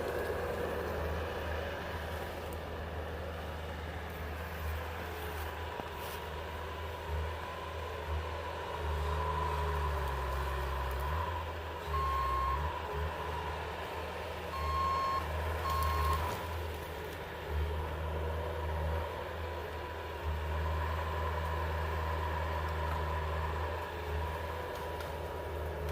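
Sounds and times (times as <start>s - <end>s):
vehicle engine rumbling: 0.0s - 25.9s
reversing alarm beeps: 11.9s - 12.7s, 14.5s - 16.2s.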